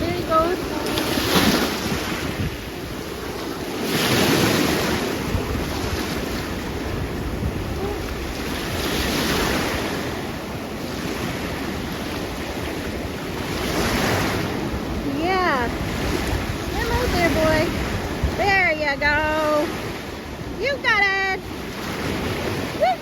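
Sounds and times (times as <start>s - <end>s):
surf washing onto beach: 0.0s - 23.0s
wind buffeting microphone: 0.0s - 23.0s.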